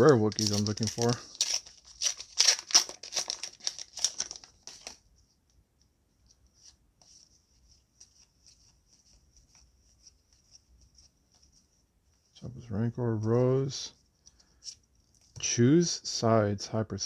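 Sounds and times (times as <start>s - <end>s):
cards clicking and rustling: 0.0s - 5.0s
foil wrapper crinkling: 0.0s - 5.0s.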